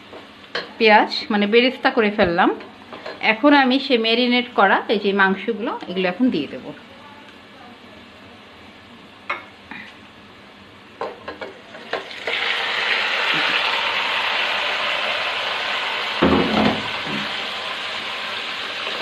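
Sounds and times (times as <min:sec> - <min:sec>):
chicken sizzling in hot oil: 0:11.8 - 0:19.0.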